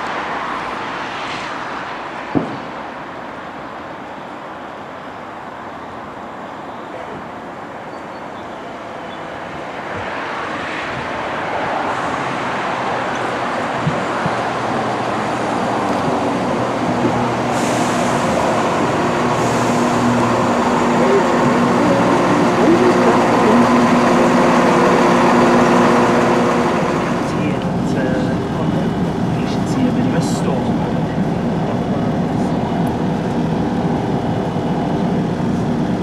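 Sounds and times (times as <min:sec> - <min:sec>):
diesel train approaching: 0:11.9 - 0:36.0
engine hum: 0:14.5 - 0:36.0.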